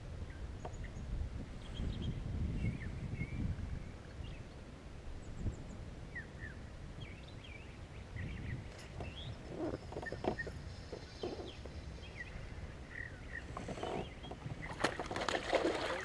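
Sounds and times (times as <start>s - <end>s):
low wind rumble: 0.0s - 16.0s
small birds chirping: 5.2s - 15.2s
soft knocks and rustles: 8.7s - 11.8s.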